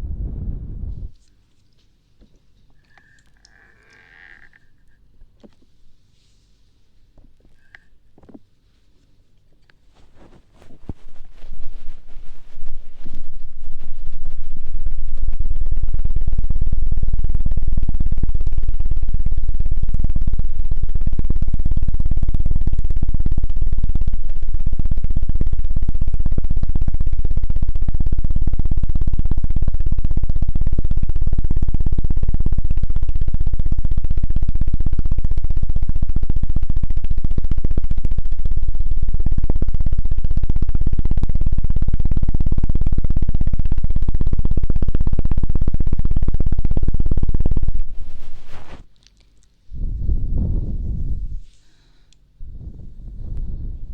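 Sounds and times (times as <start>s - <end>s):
rapid thumping on microphone: 10.0s - 14.8s, 45.9s - 48.9s, 49.8s - 51.5s.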